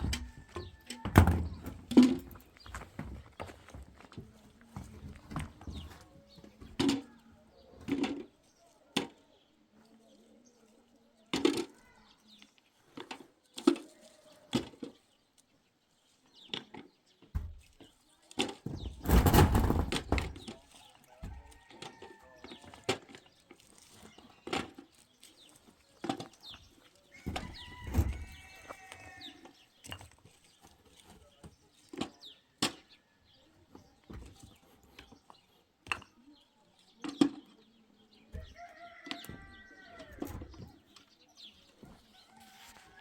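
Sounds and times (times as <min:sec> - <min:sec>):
sharp knocks and clatter: 0:18.4 - 0:20.5
rooster crowing: 0:38.6 - 0:40.2.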